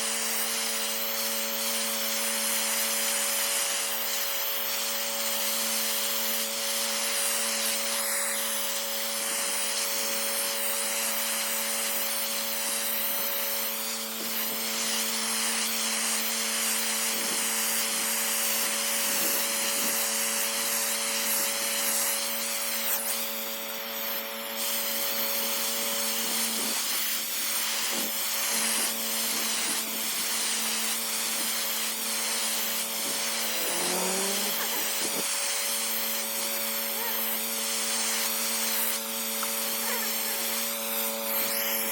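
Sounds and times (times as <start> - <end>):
pressure washer water jet hiss: 0.0 - 41.9
machine humming: 33.0 - 35.2.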